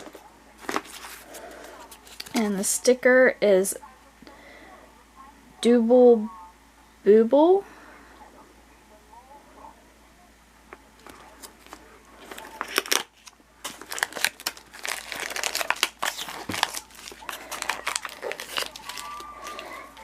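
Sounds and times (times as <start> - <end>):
wrapper packets crinkling and tearing: 0.0 - 2.4, 11.0 - 20.0.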